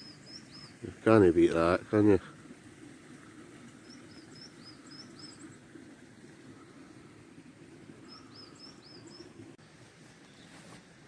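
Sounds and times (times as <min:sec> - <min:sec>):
small bird chirping: 0:00.0 - 0:00.9.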